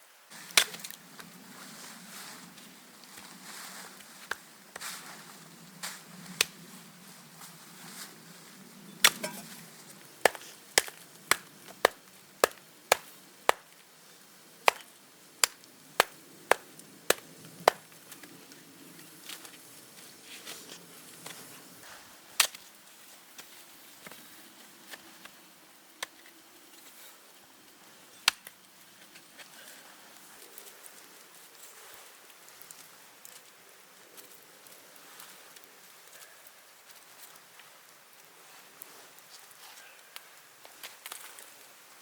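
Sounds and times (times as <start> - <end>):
chopping on wood: 10.2 - 13.6, 14.7 - 17.8.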